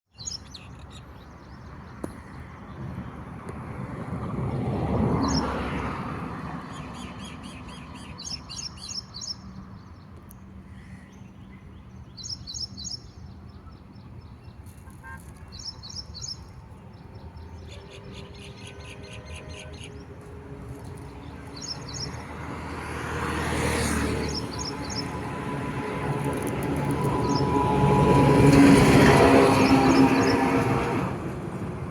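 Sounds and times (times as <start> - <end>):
passing vehicle: 2.3 - 9.7, 14.8 - 31.9.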